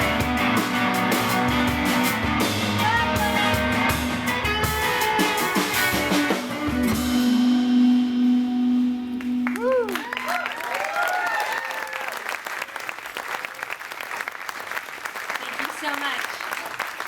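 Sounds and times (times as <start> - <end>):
drum kit beat: 0.0 - 9.9
guitar: 0.0 - 10.3.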